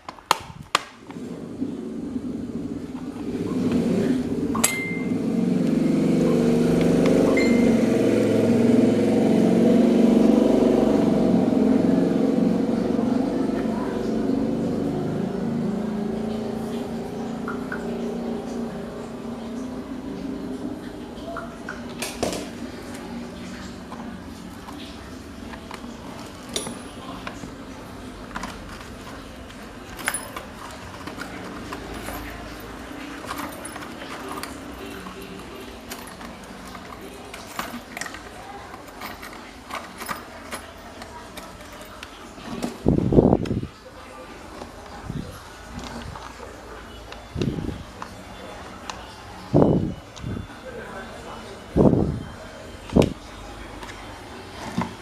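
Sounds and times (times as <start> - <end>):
electric fan motor humming: 0.0 - 55.0
small metal parts clinking: 28.3 - 42.7.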